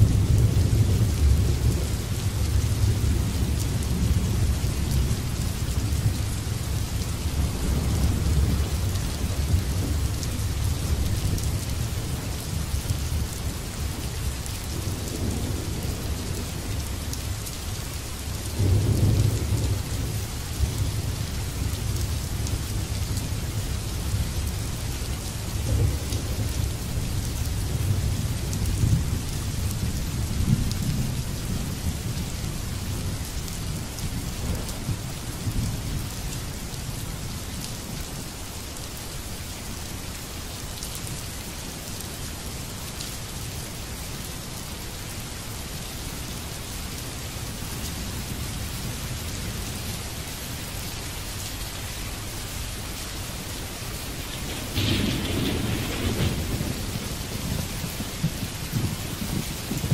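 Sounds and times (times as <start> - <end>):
rain falling: 0.0 - 59.9
thunder rumbling: 54.1 - 59.9.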